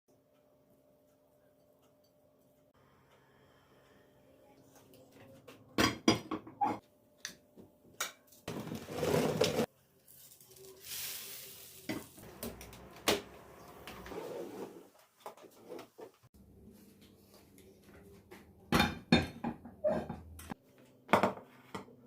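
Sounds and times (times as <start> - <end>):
faint hiss: 10.3 - 12.3.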